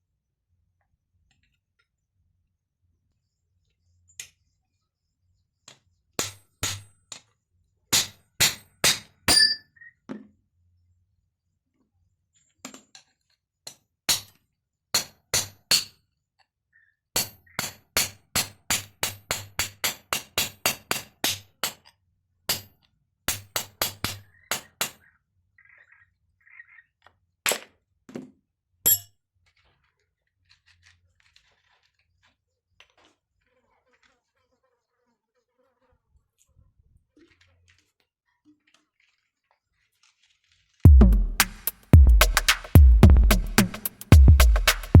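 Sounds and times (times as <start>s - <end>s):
hammer blows on steel: 40.9s - 45.0s.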